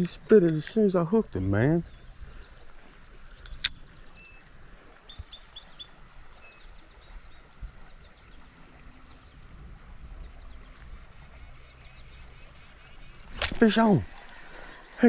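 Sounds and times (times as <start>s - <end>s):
sharp click: 13.3s - 14.4s.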